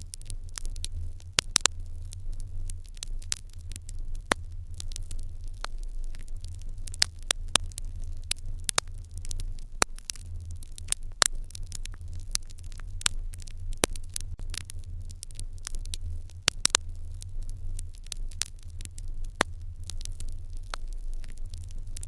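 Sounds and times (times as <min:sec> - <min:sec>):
low steady rumble: 0:00.0 - 0:22.0
wood fire crackling: 0:00.0 - 0:22.0.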